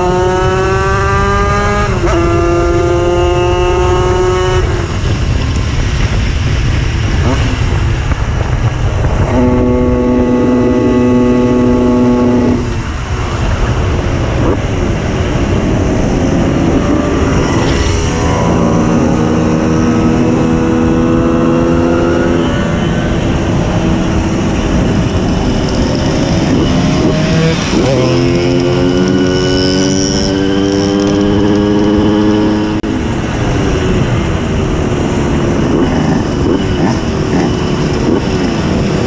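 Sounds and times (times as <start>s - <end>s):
moped engine revving: 0.0s - 39.0s.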